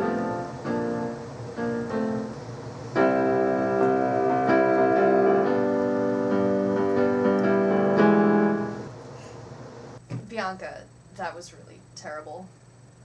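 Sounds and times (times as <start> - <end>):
keyboard chords: 0.0 - 8.9.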